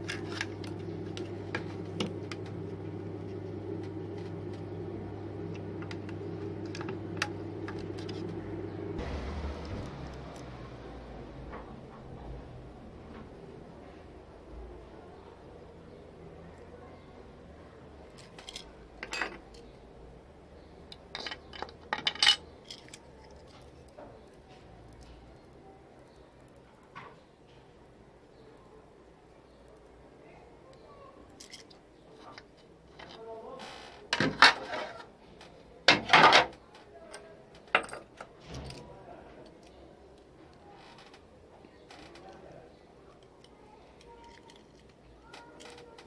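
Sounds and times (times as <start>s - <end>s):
small hard parts rattling: 18.1s - 19.8s, 20.9s - 25.1s, 43.2s - 46.0s
small hard parts clicking: 43.2s - 46.0s.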